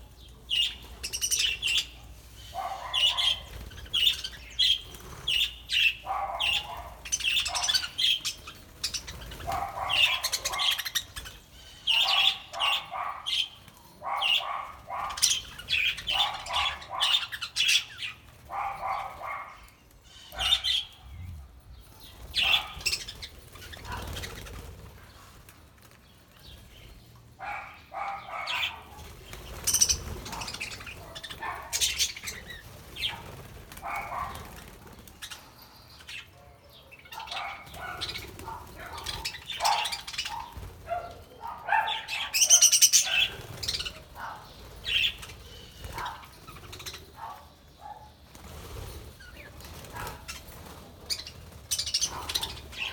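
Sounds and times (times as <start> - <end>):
budgerigars chirping: 0.5 - 21.0, 22.3 - 24.6, 27.4 - 34.6, 37.1 - 47.4, 51.1 - 52.9
wings flapping: 22.2 - 26.0, 29.0 - 35.4, 37.7 - 41.2, 42.7 - 47.1, 48.2 - 52.9.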